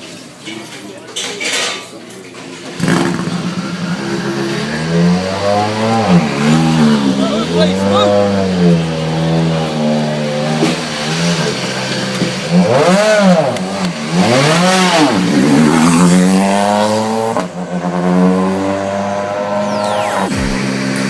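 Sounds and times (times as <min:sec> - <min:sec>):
rally car engine idling and revving: 0:02.7 - 0:21.0.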